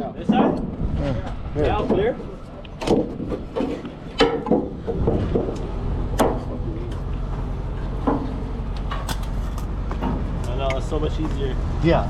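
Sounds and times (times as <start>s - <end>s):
sharp knocks: 2.8s - 6.6s, 8.0s - 10.8s.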